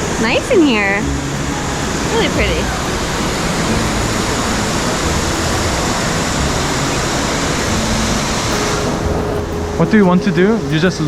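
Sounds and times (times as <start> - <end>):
fountain water rushing: 0.0 - 11.0.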